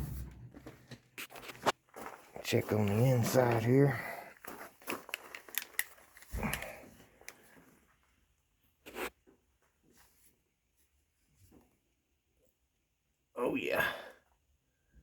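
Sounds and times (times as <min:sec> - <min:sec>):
light clicks and rustling: 0:04.5 - 0:07.7.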